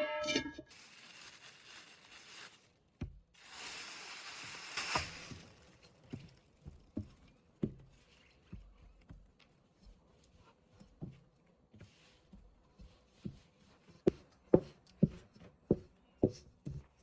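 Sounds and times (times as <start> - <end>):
rustling crinkling handling noise: 0.5 - 12.4.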